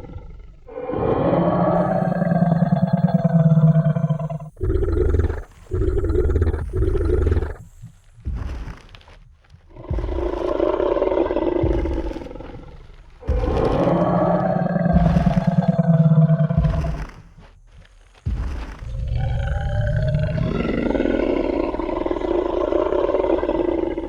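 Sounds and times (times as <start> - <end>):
deep monster roar: 0.0 - 7.6, 9.7 - 17.1, 18.9 - 24.0
dull low thumps: 0.0 - 20.4.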